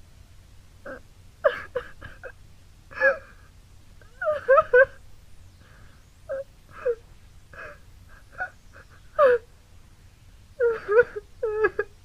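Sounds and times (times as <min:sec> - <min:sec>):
person sobbing and whimpering: 0:00.8 - 0:05.0, 0:05.7 - 0:09.5, 0:10.6 - 0:12.0.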